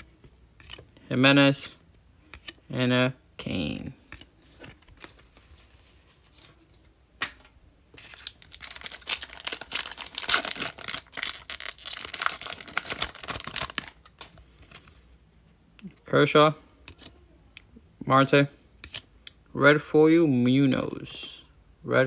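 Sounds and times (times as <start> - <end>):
foil wrapper tearing and crinkling: 8.0 - 14.4.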